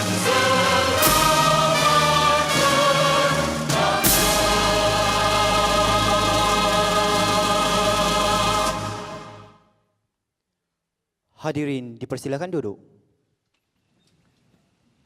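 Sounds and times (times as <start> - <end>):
instrumental accompaniment: 0.0 - 9.6
choir singing: 0.0 - 9.7.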